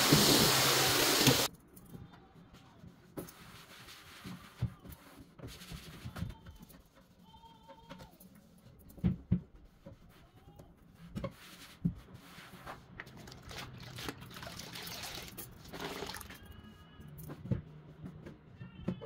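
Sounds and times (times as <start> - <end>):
steady hissing: 0.0 - 1.5.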